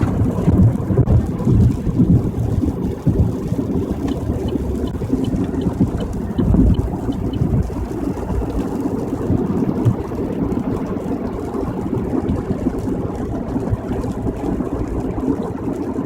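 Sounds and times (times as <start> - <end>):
tyre and engine rumble in car: 0.0 - 16.0.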